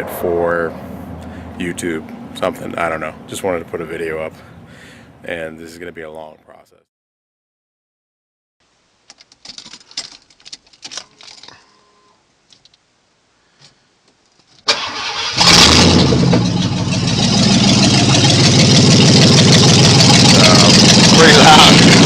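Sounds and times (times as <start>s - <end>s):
engine cranking and starting: 14.6s - 22.0s
loud engine running: 15.4s - 22.0s.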